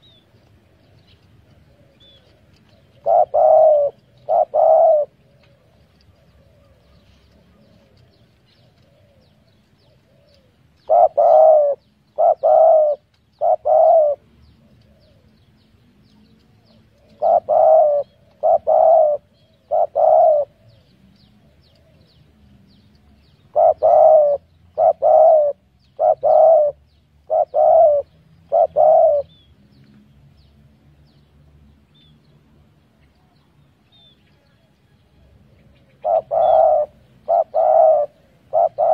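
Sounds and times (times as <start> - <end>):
dove cooing: 0.0 - 22.4, 23.0 - 29.5, 35.2 - 38.9
high chirps of small birds: 0.0 - 38.9.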